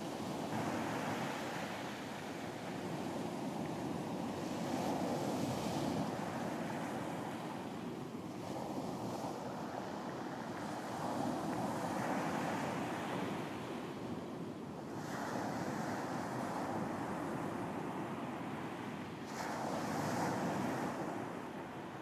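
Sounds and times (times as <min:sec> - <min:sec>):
wind: 0:00.0 - 0:22.0.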